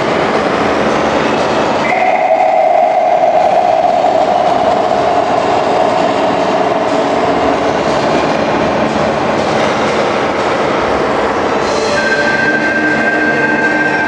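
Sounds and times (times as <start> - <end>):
held tone: 1.8 - 8.7.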